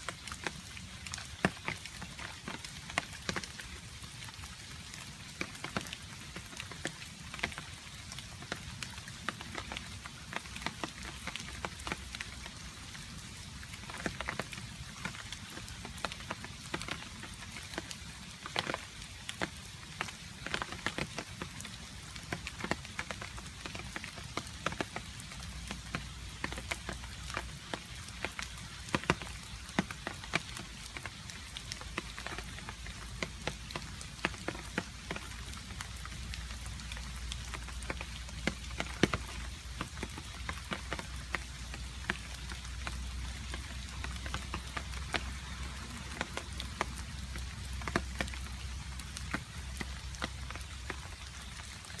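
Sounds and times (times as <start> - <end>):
rain falling: 0.0 - 52.0.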